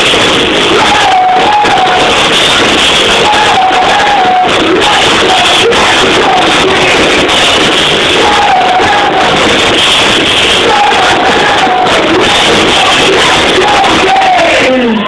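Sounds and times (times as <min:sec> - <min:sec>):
live synth-rock band: 0:00.0 - 0:15.0
person singing: 0:00.0 - 0:15.0.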